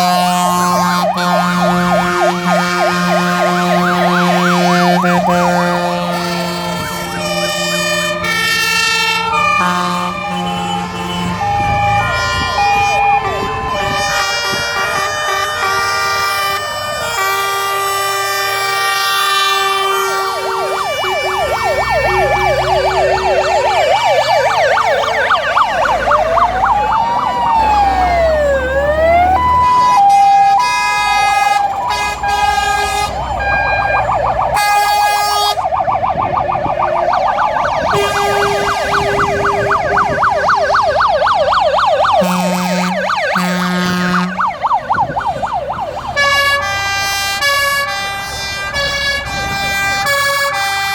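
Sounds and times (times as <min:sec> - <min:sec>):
short low horn blasts: 0:00.0 - 0:21.5, 0:30.1 - 0:33.6, 0:37.9 - 0:39.5, 0:42.2 - 0:44.4
held horn tones: 0:00.0 - 0:26.6, 0:29.6 - 0:35.7, 0:37.7 - 0:40.2, 0:42.0 - 0:50.9
fast yelping sirens: 0:00.0 - 0:50.9
wailing siren: 0:00.0 - 0:50.9.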